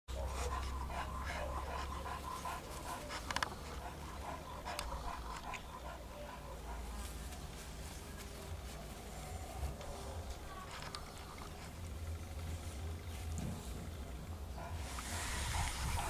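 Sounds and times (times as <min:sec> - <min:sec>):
puppy panting: 0:00.1 - 0:07.4, 0:14.5 - 0:16.0.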